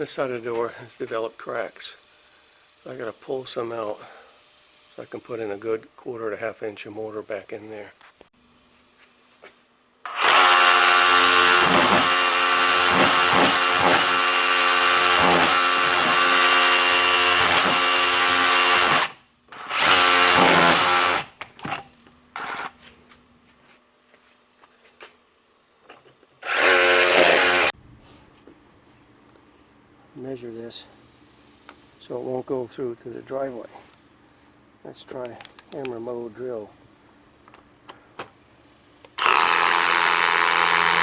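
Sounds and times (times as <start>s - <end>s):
rotary hammer chipping mortar: 10.1s - 22.8s, 39.2s - 41.0s.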